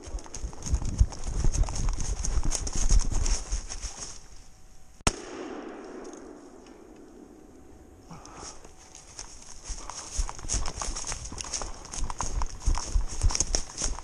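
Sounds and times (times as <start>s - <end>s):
sharp crack: 5.0s - 8.5s
thumps and rustling in dry leaves: 8.3s - 14.0s.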